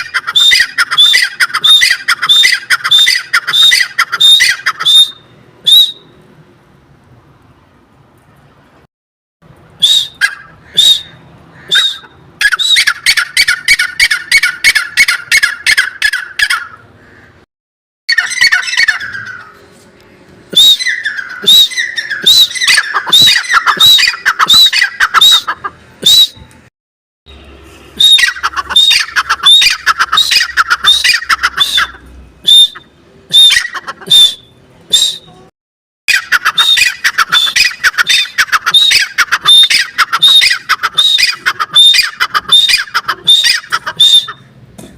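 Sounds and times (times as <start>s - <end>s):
francolin calling: 20.5s - 26.4s.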